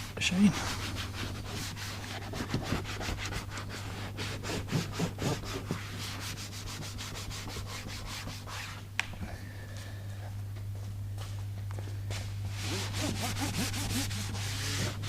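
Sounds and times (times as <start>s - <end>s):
cloth rubbing back and forth: 0.0s - 8.9s, 12.2s - 15.0s.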